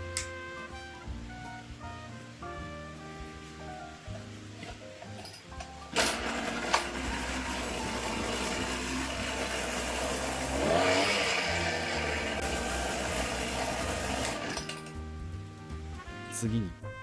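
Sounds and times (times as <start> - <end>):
small sprayer engine running: 5.9 - 15.0.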